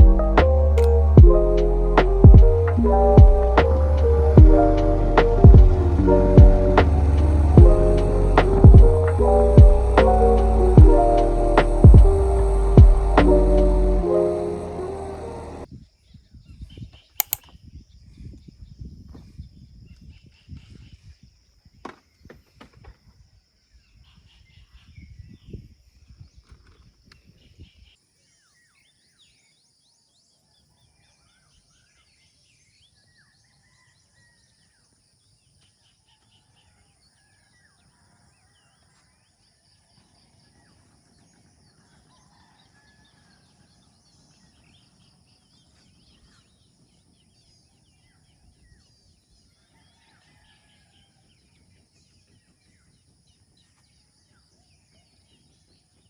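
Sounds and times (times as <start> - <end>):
low rumble with knocks: 1.2 - 15.6
high insect drone: 3.7 - 15.7.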